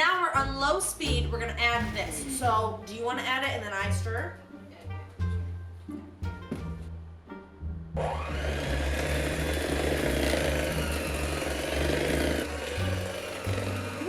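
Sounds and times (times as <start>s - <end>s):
background music: 0.0s - 14.0s
electric mixer beating dough: 8.0s - 14.0s.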